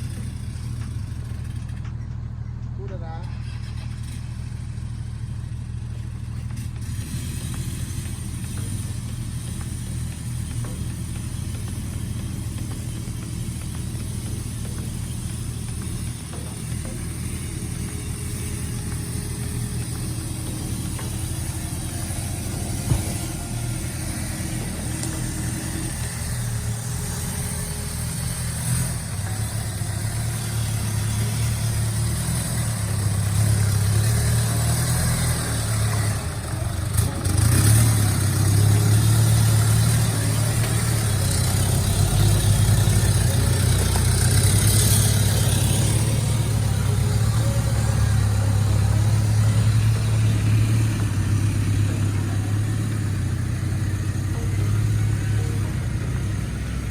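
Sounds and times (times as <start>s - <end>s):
off-road vehicle engine droning: 0.0s - 56.9s.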